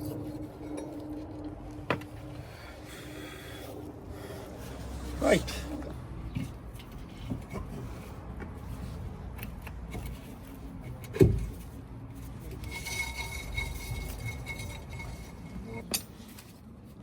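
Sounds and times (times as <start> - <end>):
metal parts rubbing and clinking: 12.2 - 16.6.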